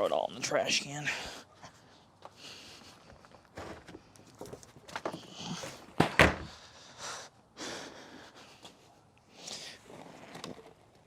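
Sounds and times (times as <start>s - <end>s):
junk knocking into trash can: 6.0s - 6.5s.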